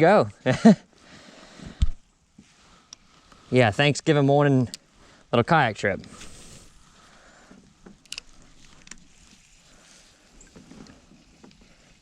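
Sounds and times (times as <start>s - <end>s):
faint water and handling noise: 6.0s - 12.0s
small clicks: 7.8s - 9.1s.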